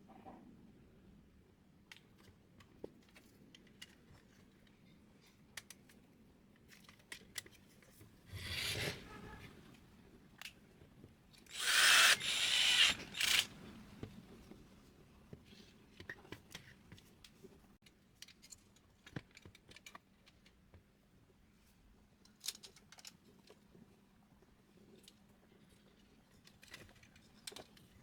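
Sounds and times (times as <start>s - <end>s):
small power tool bursts: 11.5s - 13.6s.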